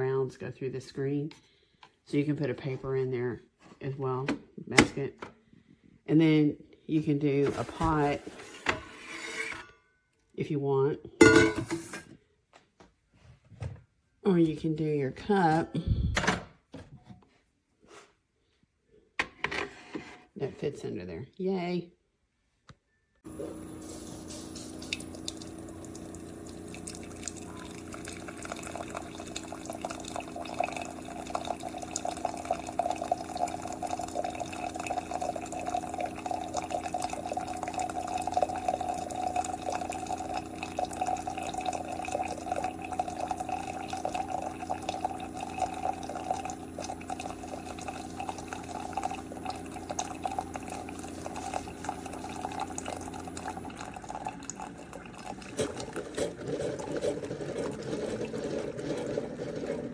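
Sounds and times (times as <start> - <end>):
coffee streaming into mug: 7.4 - 8.2, 23.3 - 59.9
coffee machine pump hum: 7.4 - 8.4, 23.3 - 59.9.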